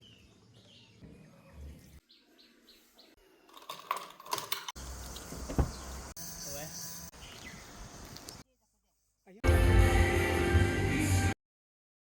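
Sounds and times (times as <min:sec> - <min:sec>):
birds chirping faintly: 0:04.8 - 0:09.4.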